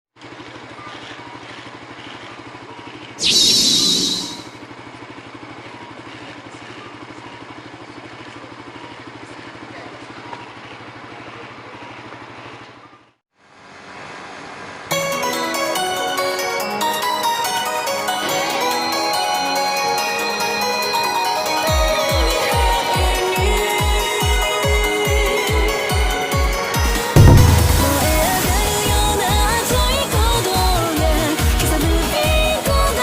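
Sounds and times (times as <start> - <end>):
motorcycle engine idling: 0.2 - 3.2, 4.5 - 13.2, 21.8 - 33.0
loud high wavering sound: 3.2 - 4.6, 27.2 - 29.2.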